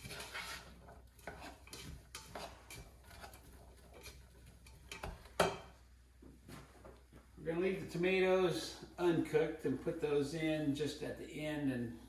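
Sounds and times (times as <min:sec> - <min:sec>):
utensil stirring vegetables in pan: 0:00.0 - 0:05.8.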